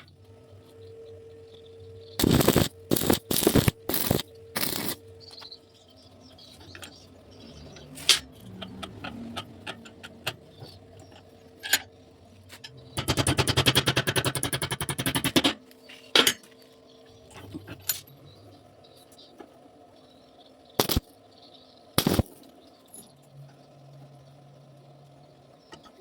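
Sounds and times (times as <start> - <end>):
welding arc crackle: 2.2 - 5.6, 20.8 - 21.2, 22.0 - 22.6
metal parts clicking and tapping: 7.7 - 16.6.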